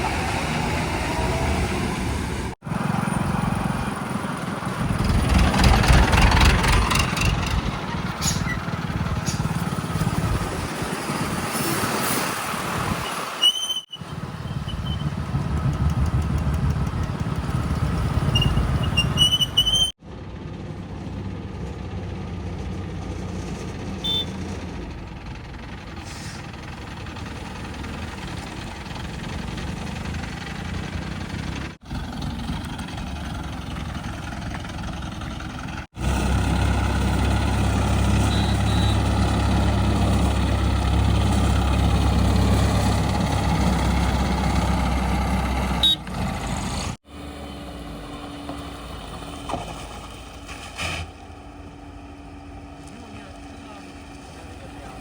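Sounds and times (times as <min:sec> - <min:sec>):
diesel engines revving: 0:00.0 - 0:55.0
high squeaks: 0:06.8 - 0:09.5, 0:13.1 - 0:15.1, 0:18.2 - 0:20.0.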